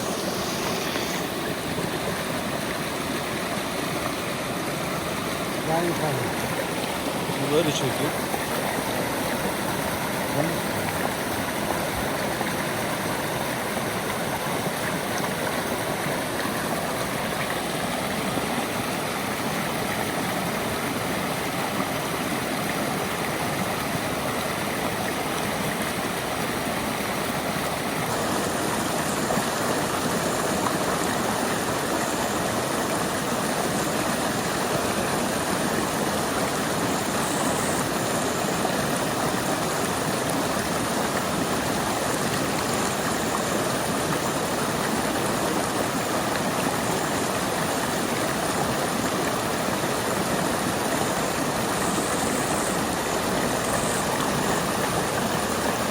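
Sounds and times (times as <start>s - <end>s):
river water rushing: 0.0s - 55.9s.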